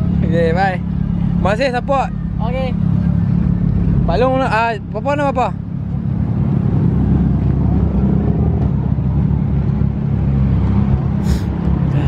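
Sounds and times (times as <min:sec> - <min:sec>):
brief hiss: 0:11.2 - 0:11.5.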